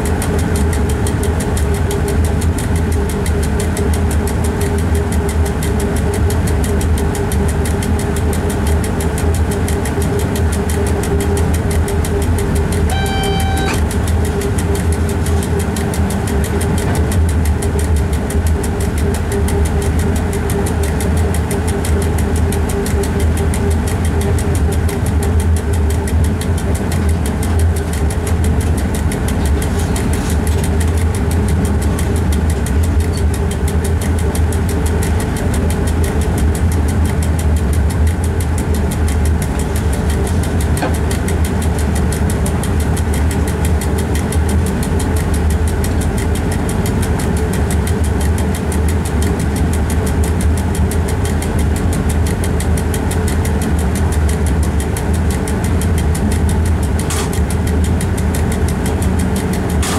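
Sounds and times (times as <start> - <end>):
train cab low drone: 0.0 - 59.9.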